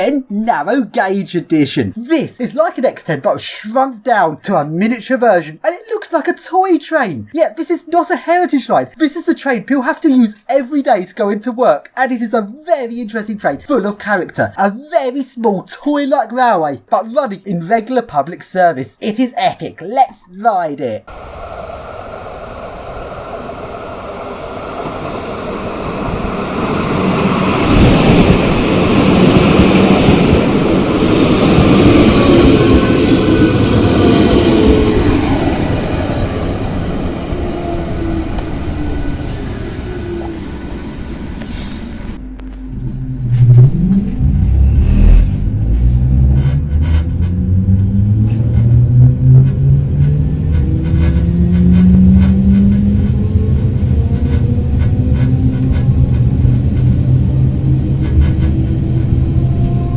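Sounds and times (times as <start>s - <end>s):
electric train rumbling on rails: 21.0s - 59.9s
wheels clicking on track: 46.1s - 59.8s.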